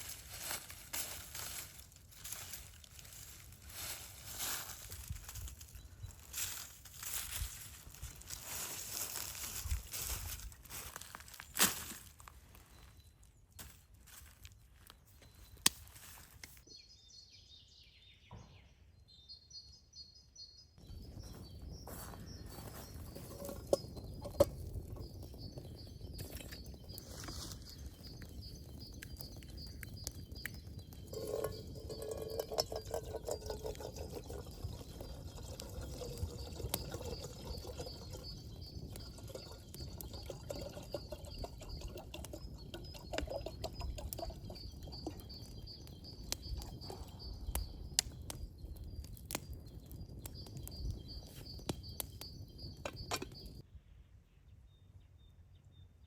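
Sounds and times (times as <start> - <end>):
birds chirping: 12.4 - 55.7.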